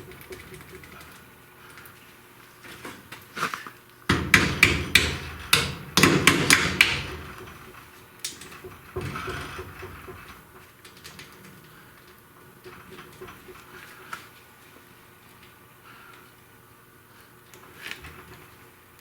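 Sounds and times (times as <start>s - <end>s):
hammer strikes: 4.1s - 10.2s.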